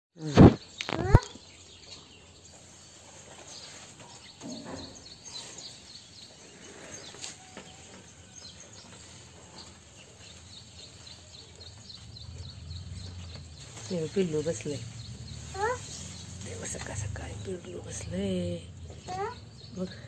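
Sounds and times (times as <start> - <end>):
small birds chirping: 0.2 - 20.0
soft rustle of plants: 0.2 - 20.0.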